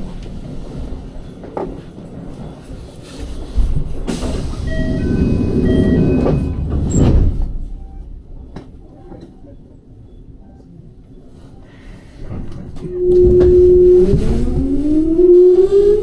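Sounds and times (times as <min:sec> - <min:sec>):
train and platform noise: 0:00.0 - 0:16.0
two-tone door chime: 0:04.6 - 0:08.2.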